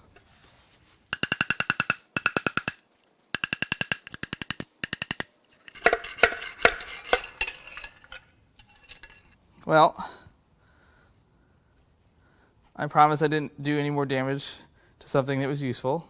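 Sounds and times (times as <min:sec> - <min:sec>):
ratchet wrench clicking: 0:01.2 - 0:05.3
metal parts clanking: 0:01.2 - 0:09.3.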